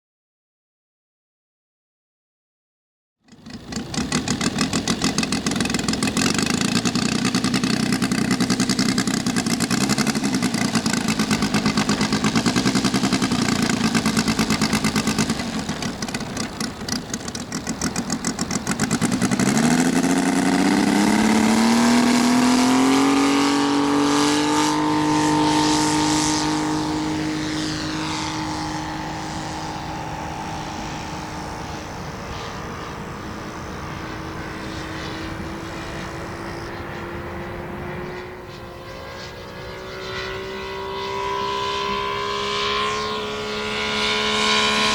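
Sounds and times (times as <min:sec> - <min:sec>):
model aircraft engine: 0:03.3 - 0:44.9.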